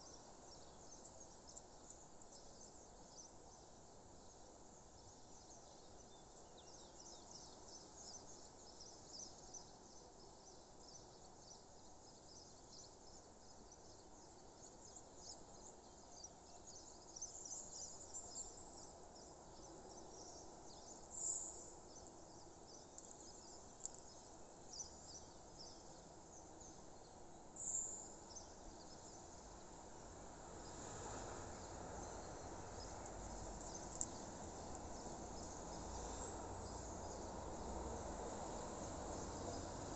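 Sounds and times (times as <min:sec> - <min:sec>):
low background noise: 0:00.0 - 0:39.9
insects chirping: 0:27.6 - 0:39.9.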